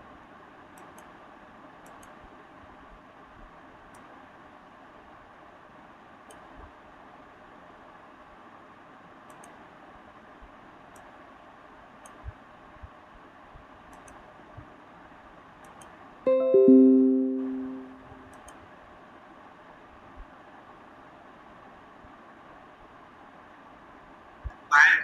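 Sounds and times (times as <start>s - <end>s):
plucked string notes: 16.3s - 18.2s.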